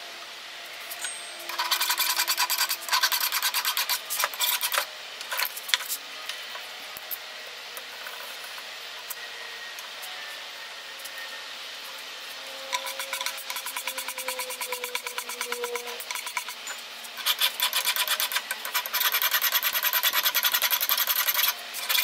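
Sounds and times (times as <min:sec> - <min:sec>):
hand file rasping on steel: 0:01.5 - 0:04.9, 0:12.7 - 0:22.0.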